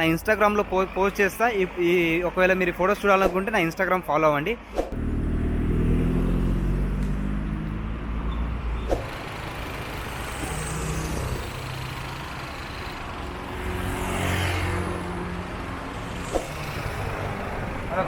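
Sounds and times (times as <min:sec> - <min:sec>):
vehicle rushing past: 0:04.8 - 0:18.0
heavy engine hum: 0:05.0 - 0:18.0.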